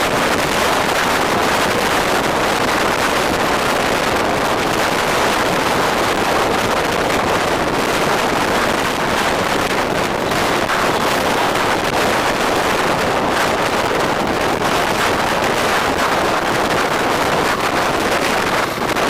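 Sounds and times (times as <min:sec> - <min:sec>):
road and traffic noise: 0:00.0 - 0:19.0
wind on microphone: 0:00.0 - 0:19.0.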